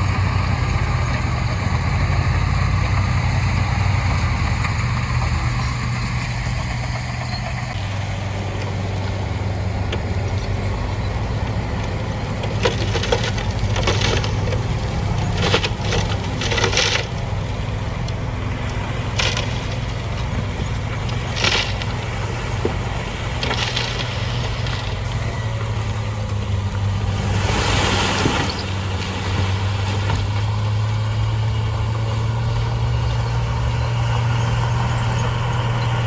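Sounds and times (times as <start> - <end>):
heavy diesel machine running: 0.0 - 36.0
rock and gravel crunching: 0.0 - 36.0.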